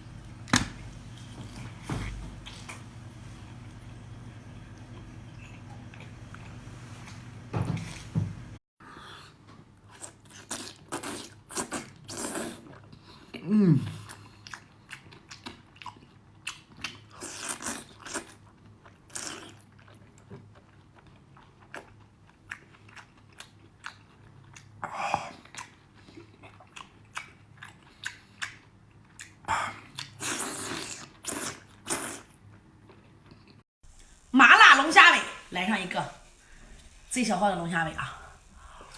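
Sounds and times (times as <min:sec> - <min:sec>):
person chewing food: 0:09.9 - 0:33.6.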